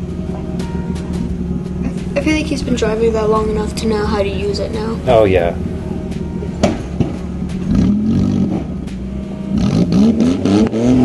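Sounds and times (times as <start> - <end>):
engine revving: 0.0 - 11.0
sharp knocks: 6.1 - 7.8.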